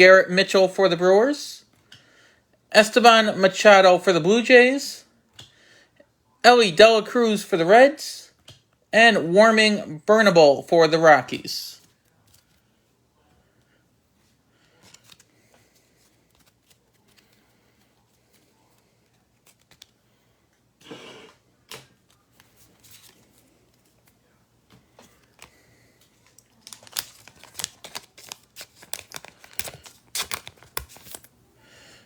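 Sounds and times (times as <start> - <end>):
plastic packaging crinkles and clicks: 14.6 - 20.0, 21.6 - 31.4.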